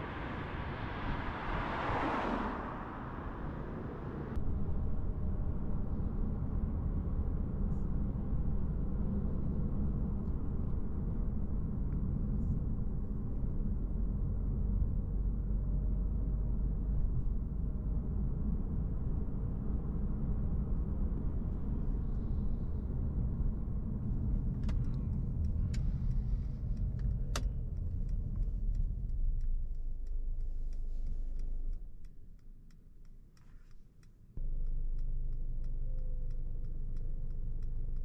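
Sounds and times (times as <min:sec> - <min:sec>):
car engine and tyres: 0:00.0 - 0:38.0
turn indicator ticking: 0:24.6 - 0:38.0.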